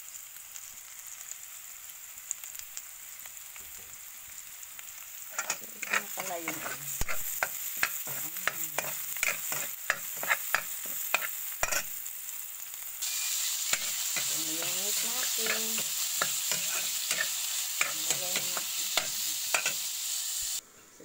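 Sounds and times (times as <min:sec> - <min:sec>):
meat frying: 0:00.0 - 0:20.6
onion and garlic sizzling in oil: 0:00.0 - 0:20.7
utensil tapping and scraping a pan: 0:05.3 - 0:12.0, 0:13.7 - 0:19.8.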